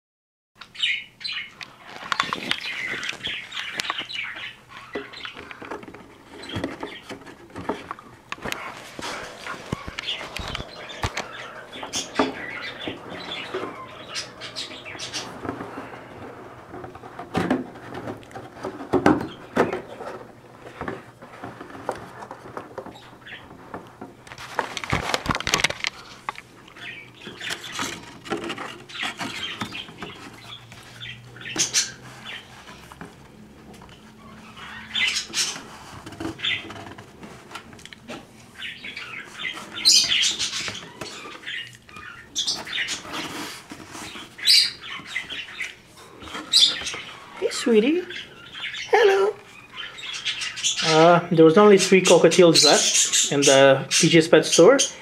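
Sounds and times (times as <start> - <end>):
bird claws scratching cardboard: 38.9 - 45.6.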